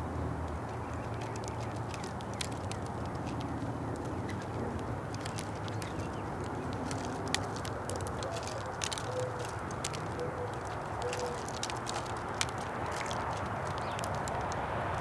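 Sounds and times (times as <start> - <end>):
birds feeding clicks and taps: 0.1 - 15.0
dove cooing: 2.8 - 14.1.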